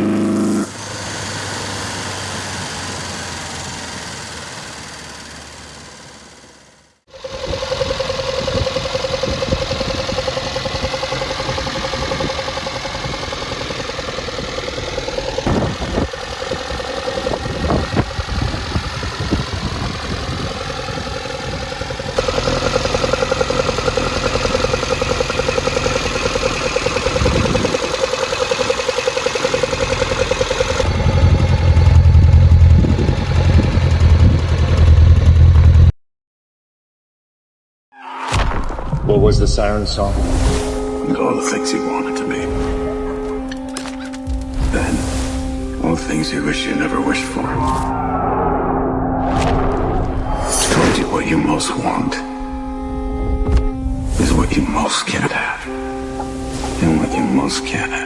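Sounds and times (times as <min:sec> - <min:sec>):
car engine idling: 0:00.0 - 0:35.9.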